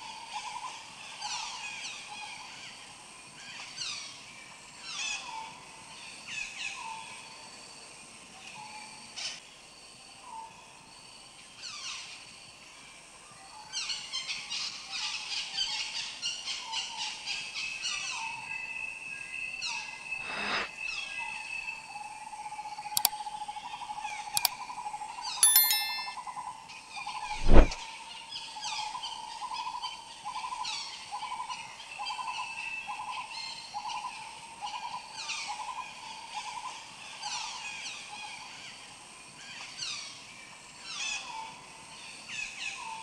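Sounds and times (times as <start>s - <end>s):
ringing ding: 25.4s - 26.2s
sharp click: 25.4s - 26.2s, 27.3s - 27.8s
steady high tone: 25.4s - 26.2s.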